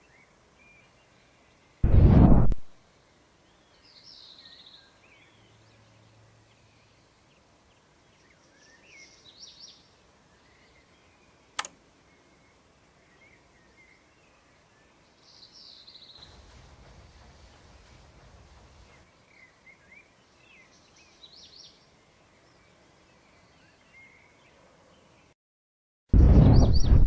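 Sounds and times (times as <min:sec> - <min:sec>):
faint birds chirping: 0:00.0 - 0:01.8, 0:02.8 - 0:25.4
low rumble: 0:01.8 - 0:02.7
sharp click: 0:11.6 - 0:11.8.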